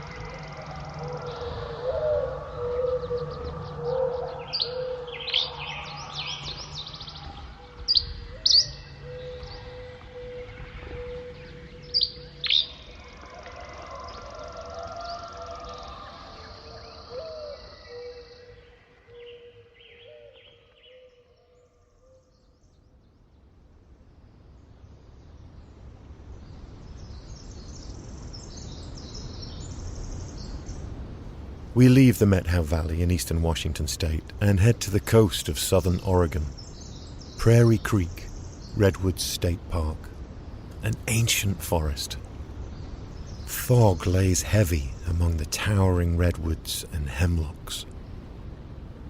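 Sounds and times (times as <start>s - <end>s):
sharp loud bird calls: 0.0s - 22.3s
songbirds singing: 0.0s - 49.0s
steady low hum: 29.0s - 49.0s.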